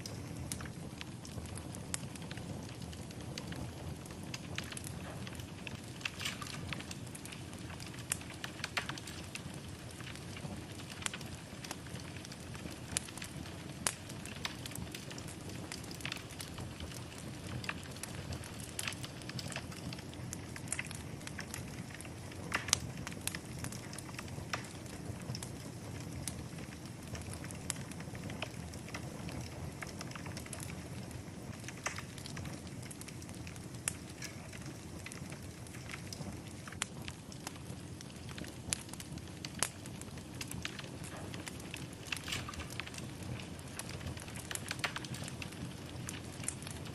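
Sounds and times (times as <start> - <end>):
fire crackling and popping: 0.0 - 46.9
fire flames rushing: 0.0 - 46.9.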